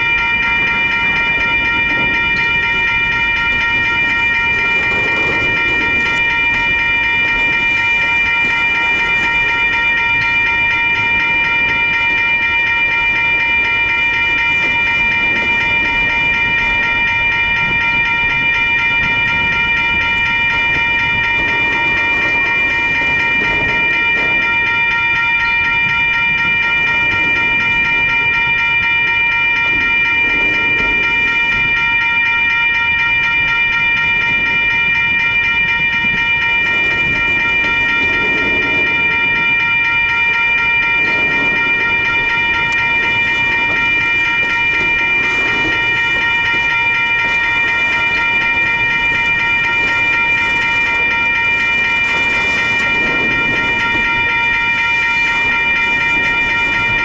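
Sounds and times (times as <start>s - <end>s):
crossing signal bell ringing: 0.0s - 57.0s.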